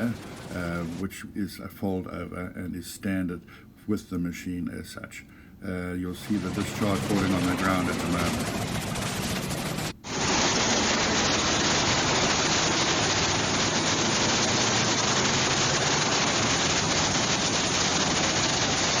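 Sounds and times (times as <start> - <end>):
wood grinder running: 6.3 - 19.0.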